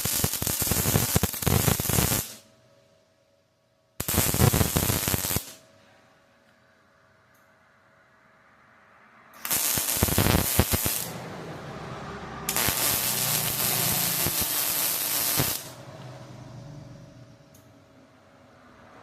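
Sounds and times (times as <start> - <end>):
welding arc crackling hiss: 0.0 - 2.4, 4.0 - 5.6, 9.4 - 11.2, 12.5 - 15.8.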